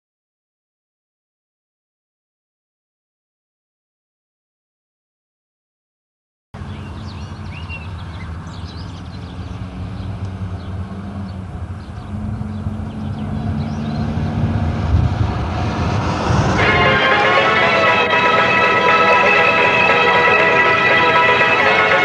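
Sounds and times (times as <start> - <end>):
large engine droning: 6.6 - 22.0.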